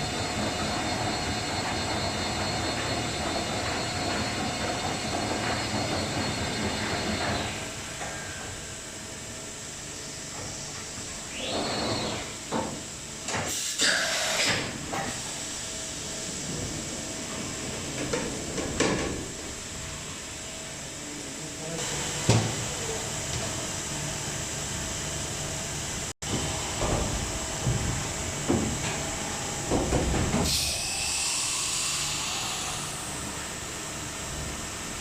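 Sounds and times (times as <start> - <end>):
machine humming: 26.2 - 35.0.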